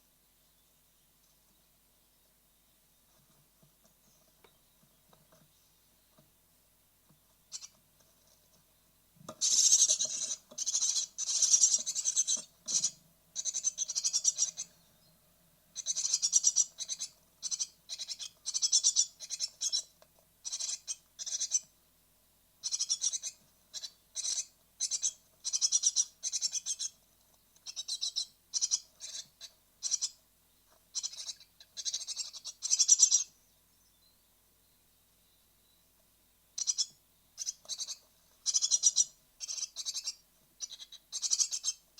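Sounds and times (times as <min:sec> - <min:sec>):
nestlings calling: 0:07.2 - 0:08.6, 0:09.2 - 0:21.7, 0:22.6 - 0:34.2, 0:36.6 - 0:41.9.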